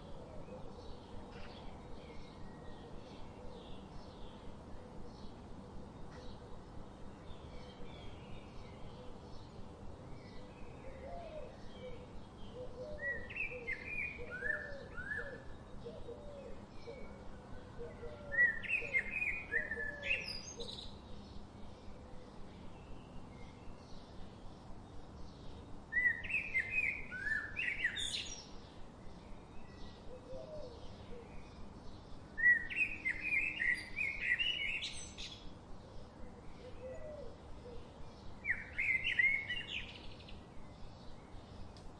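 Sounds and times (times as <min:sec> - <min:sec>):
background hiss: 0:00.0 - 0:41.9
bird chirping: 0:17.8 - 0:22.0, 0:22.6 - 0:41.9.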